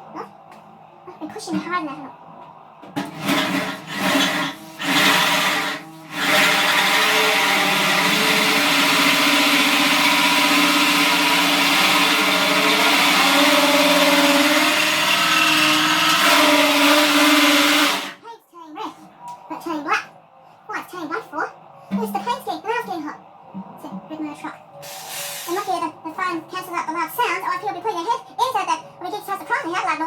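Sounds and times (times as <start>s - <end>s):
electric drill cutting steel: 3.2s - 18.2s.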